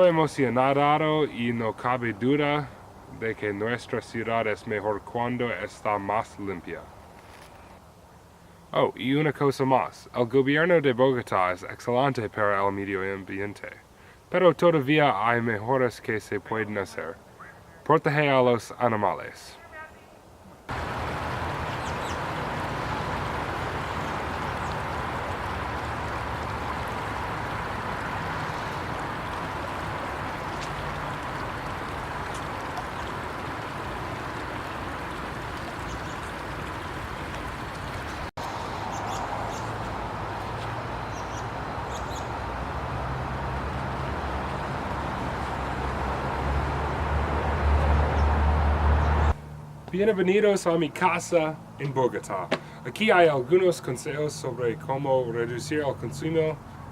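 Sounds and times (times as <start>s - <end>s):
outdoor rushing noise: 20.7s - 49.6s.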